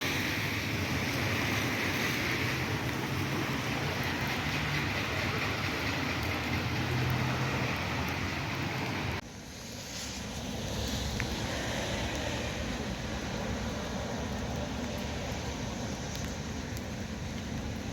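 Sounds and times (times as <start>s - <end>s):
steady rain: 0.0s - 17.9s.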